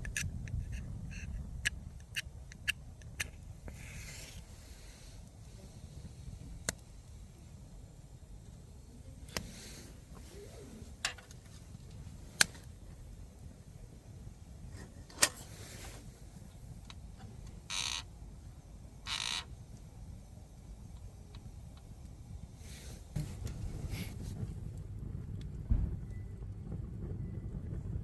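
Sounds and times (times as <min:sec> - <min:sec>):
campfire crackling pops: 0:00.0 - 0:28.0
short hissy bursts: 0:03.2 - 0:06.4, 0:09.3 - 0:11.0, 0:14.8 - 0:16.5, 0:22.6 - 0:24.6
steady low rumble: 0:19.6 - 0:28.0.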